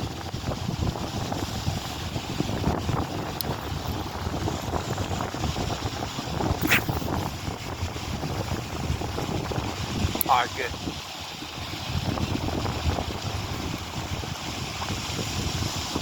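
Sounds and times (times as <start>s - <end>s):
strong wind buffeting microphone: 0.0s - 16.0s
short high hiss: 6.6s - 7.3s.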